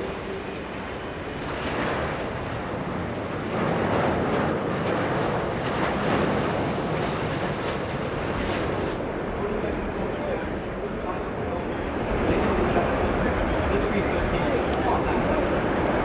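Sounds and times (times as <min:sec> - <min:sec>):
jet engine rushing: 0:00.0 - 0:16.0.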